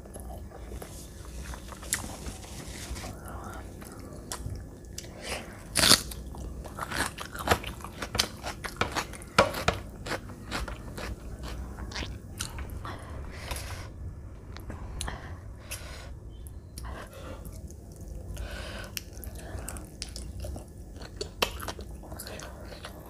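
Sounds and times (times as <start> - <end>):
crunchy chewing: 3.8 - 12.6.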